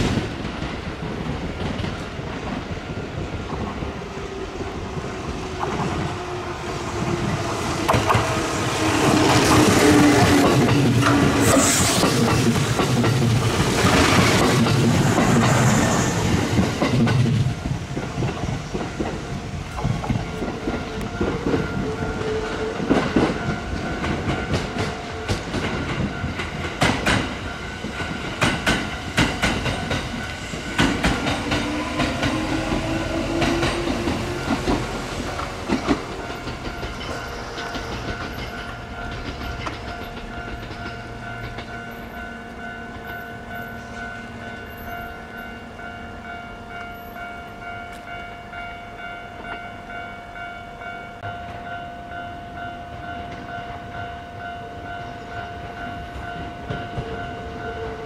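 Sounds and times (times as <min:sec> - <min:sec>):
train wheels clacking over rail joints: 0:04.6 - 0:42.1
train motor whine: 0:29.8 - 0:41.0.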